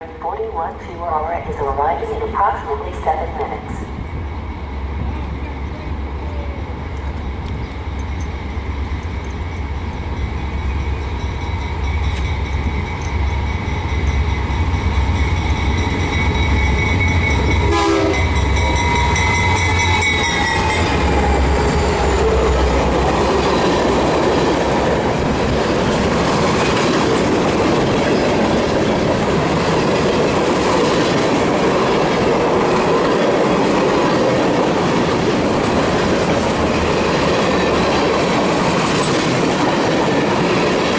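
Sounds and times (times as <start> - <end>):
locomotive engine rumble: 0.0 - 40.9
train air horn: 17.7 - 19.2.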